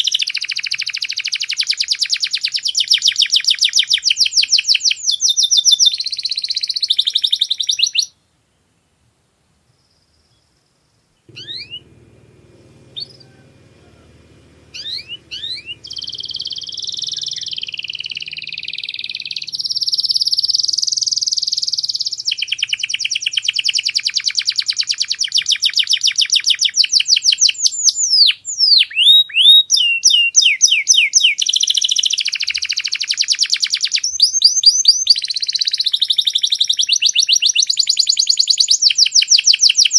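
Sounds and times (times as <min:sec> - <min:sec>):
canary singing trills: 0:11.3 - 0:39.9.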